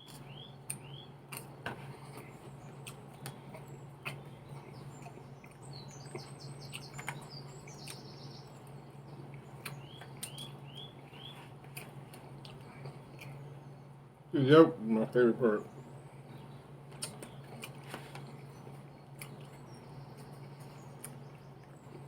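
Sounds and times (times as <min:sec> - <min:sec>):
bird chirping: 0:00.0 - 0:01.2, 0:02.2 - 0:11.5, 0:15.4 - 0:22.0
steady low hum: 0:00.0 - 0:22.0.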